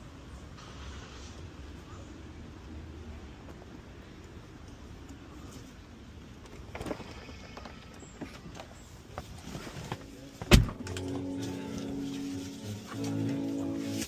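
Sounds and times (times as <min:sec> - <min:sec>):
car door shutting: 0:09.9 - 0:11.0
music: 0:10.0 - 0:14.0.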